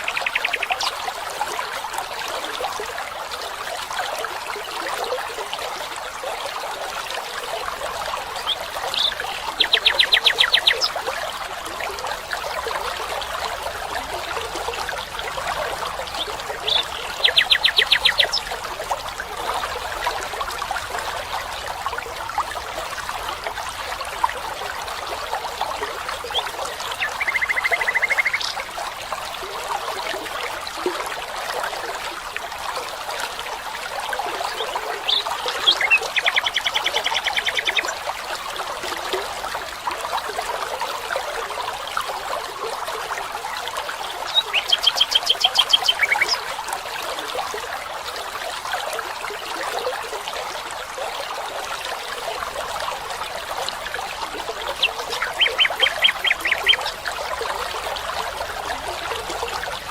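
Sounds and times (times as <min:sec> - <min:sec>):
stream trickling: 0:00.0 - 0:59.9
animal trilled calls: 0:54.7 - 0:56.9.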